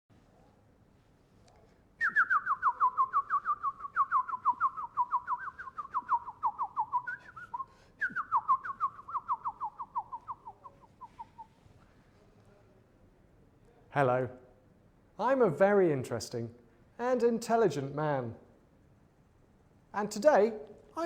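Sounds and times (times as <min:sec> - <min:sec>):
bird trilling: 0:08.2 - 0:11.5.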